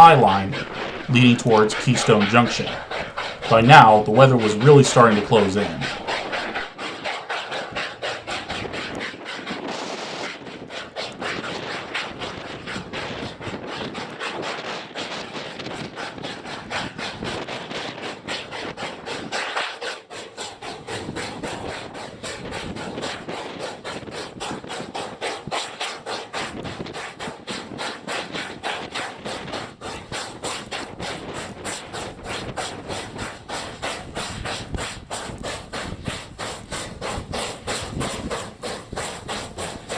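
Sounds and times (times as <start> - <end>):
snow and ice pelting microphone: 0.0 - 6.7.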